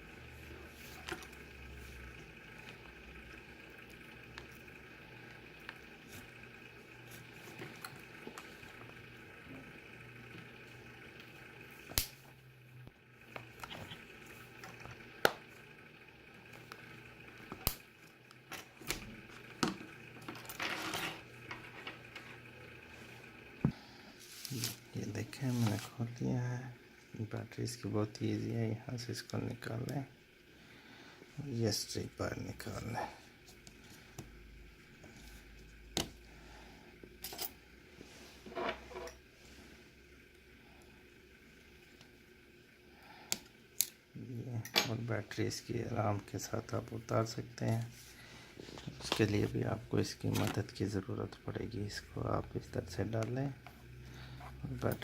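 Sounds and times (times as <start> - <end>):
scraping rustle: 24.2 - 26.0.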